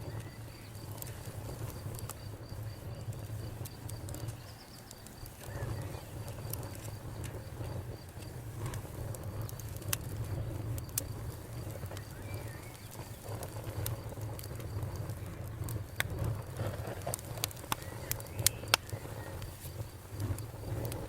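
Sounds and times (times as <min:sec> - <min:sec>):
low rumble of burning: 0:00.0 - 0:21.0
wood fire crackling and popping: 0:00.0 - 0:21.0.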